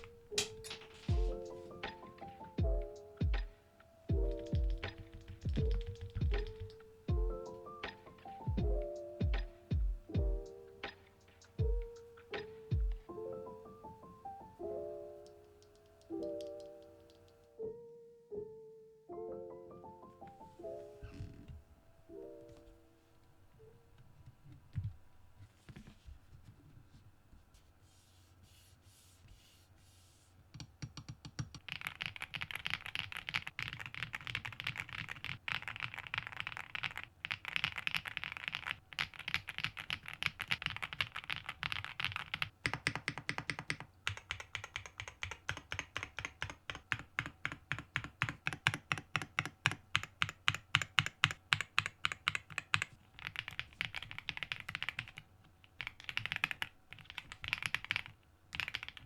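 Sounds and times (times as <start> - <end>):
mechanical keyboard typing: 0.0 - 9.6, 30.6 - 59.0.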